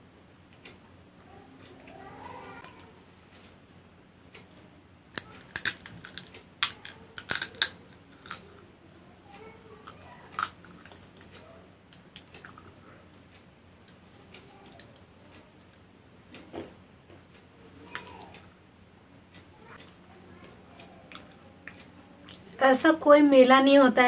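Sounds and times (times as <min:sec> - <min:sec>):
crunchy snack being chewed: 0:05.2 - 0:08.6, 0:09.8 - 0:12.8.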